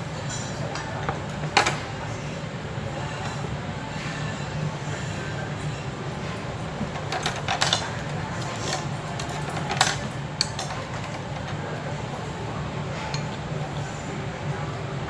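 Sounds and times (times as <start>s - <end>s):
utensils clicking against dishes: 6.2s - 12.0s.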